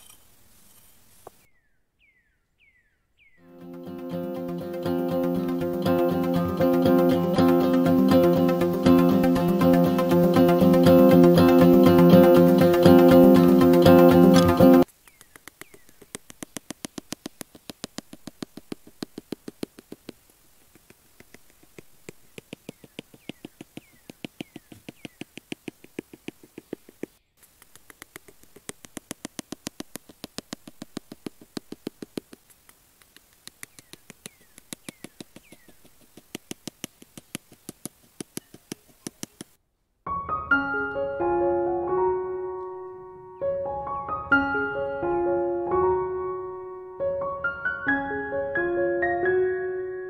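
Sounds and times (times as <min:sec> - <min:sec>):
rapid sharp clicks: 0:04.2 - 0:39.6.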